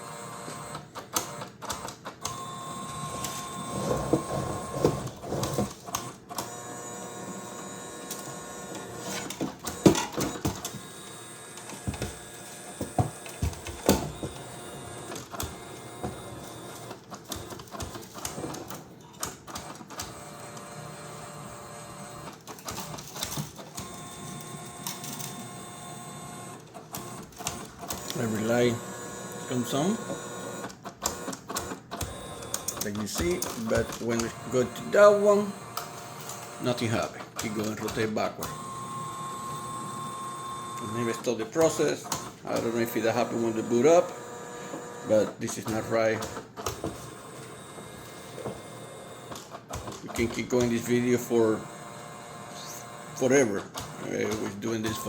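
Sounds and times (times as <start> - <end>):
feed mechanism whirring: 0.0 - 55.0
motor whine: 42.6 - 46.0.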